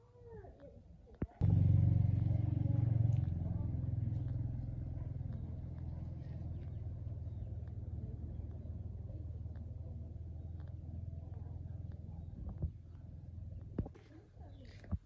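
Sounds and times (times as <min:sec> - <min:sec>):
old gasoline engine running: 0:01.4 - 0:09.4.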